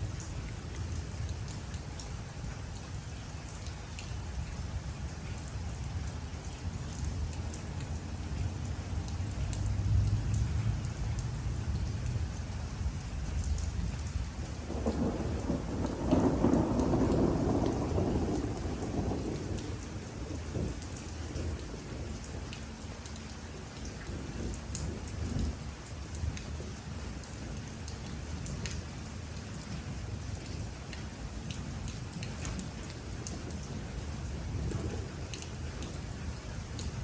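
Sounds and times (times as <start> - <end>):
steady rain falling: 0.0 - 37.0
raindrops tapping: 0.1 - 37.0
low roll of thunder: 9.6 - 22.5, 31.4 - 37.0.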